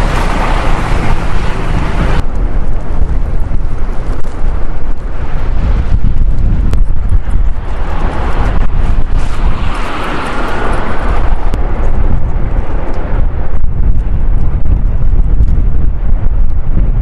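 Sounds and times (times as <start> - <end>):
engine noise: 0.0 - 16.7
wind buffeting microphone: 0.0 - 17.0.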